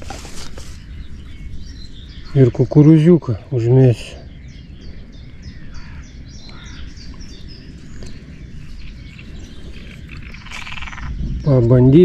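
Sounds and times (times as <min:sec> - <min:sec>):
small birds chirping: 0:00.0 - 0:12.0
frog croaking: 0:08.8 - 0:11.3.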